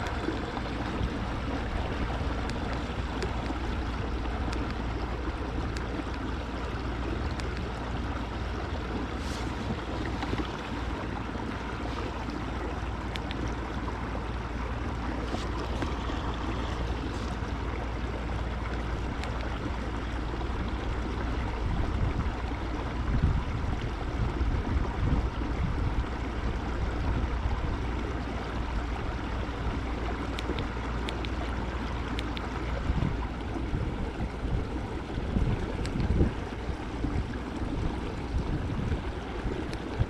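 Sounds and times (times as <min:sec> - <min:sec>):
rushing water: 0:00.0 - 0:40.0
wind noise: 0:20.6 - 0:27.8, 0:32.7 - 0:40.0.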